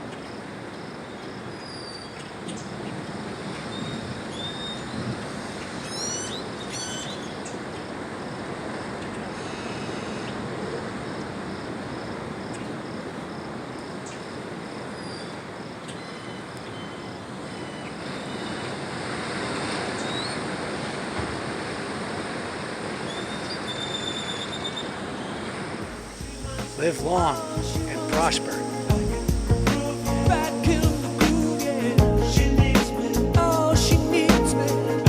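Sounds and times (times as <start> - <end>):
birds chirping: 1.2 - 7.9, 23.0 - 34.7
bird whistles: 3.7 - 5.0, 5.8 - 7.5, 20.0 - 20.4, 23.0 - 25.4
steady rushing noise: 25.6 - 32.0.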